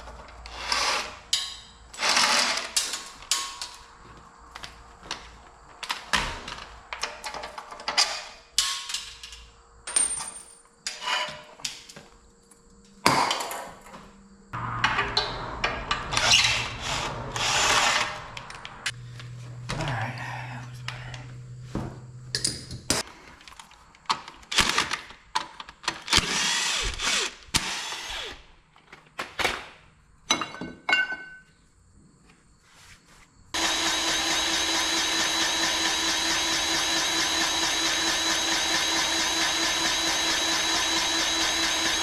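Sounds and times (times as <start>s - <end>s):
tools scraping and clanking on metal: 10.9s - 11.6s
steady low hum: 14.1s - 23.0s.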